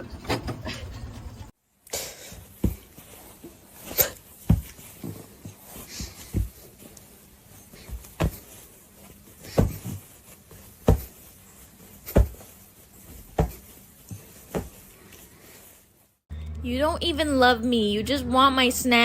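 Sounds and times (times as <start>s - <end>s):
dull thumps: 4.4s - 6.6s, 9.4s - 11.3s, 12.0s - 14.8s.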